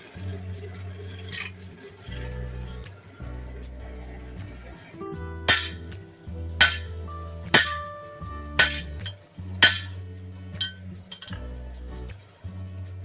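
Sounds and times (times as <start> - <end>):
background music: 0.0 - 13.0
hammer striking metal on anvil: 5.5 - 5.9, 6.6 - 10.0, 10.6 - 11.5.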